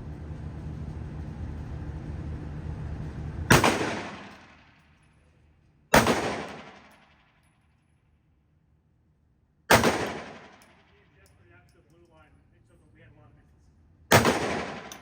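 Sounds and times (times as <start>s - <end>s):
low hum: 0.0s - 6.7s
handgun shots with echo: 3.5s - 4.6s, 6.0s - 7.1s, 9.7s - 10.9s, 14.1s - 15.0s.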